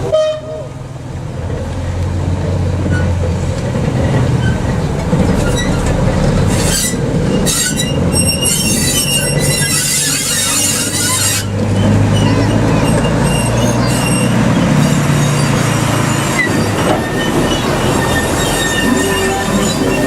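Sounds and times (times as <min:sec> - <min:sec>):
diesel engine drone: 0:00.0 - 0:20.0
train wheel squeal: 0:05.3 - 0:20.0.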